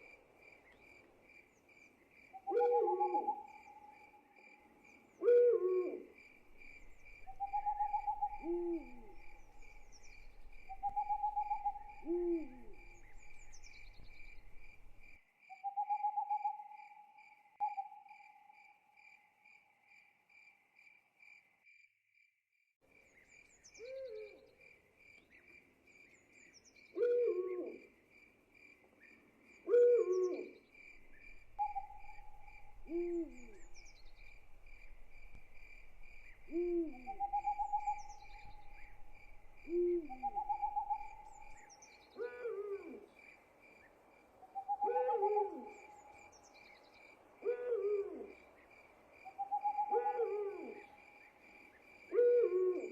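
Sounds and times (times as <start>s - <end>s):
owl hooting: 2.4s - 4.0s, 5.2s - 15.0s, 23.8s - 24.5s, 27.0s - 27.8s, 29.7s - 43.1s, 44.5s - 46.3s, 47.4s - 48.4s, 49.3s - 51.0s, 52.1s - 52.9s
cricket trill: 6.2s - 16.5s, 30.8s - 41.9s.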